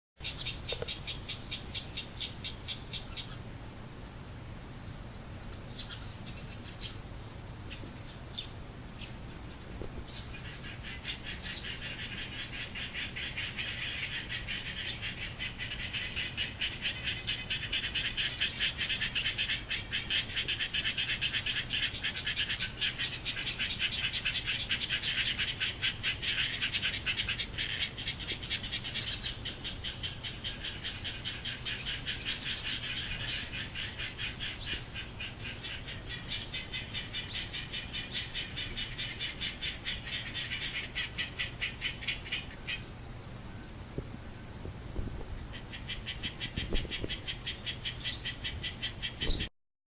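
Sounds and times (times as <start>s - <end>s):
frogs trilling in chorus: 10.2s - 43.3s, 45.6s - 49.5s.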